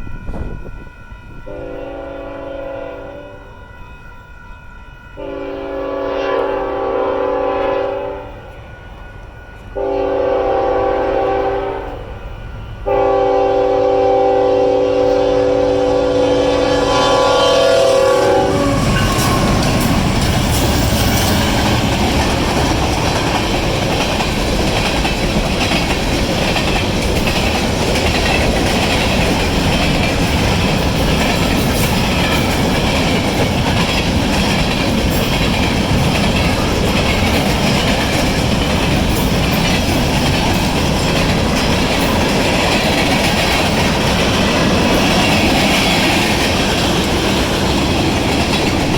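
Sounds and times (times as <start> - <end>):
freight train rolling past: 0.0 - 48.9
locomotive horn chord: 1.5 - 3.9, 5.2 - 8.5, 9.8 - 12.1, 12.9 - 23.0
wheels clacking on rails: 16.6 - 48.9.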